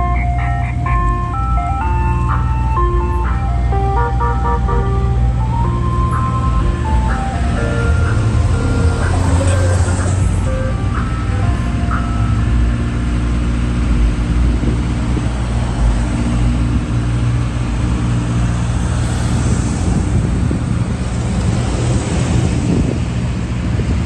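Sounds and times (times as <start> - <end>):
road noise: 0.0 - 24.0
vehicle engine humming: 0.0 - 24.0.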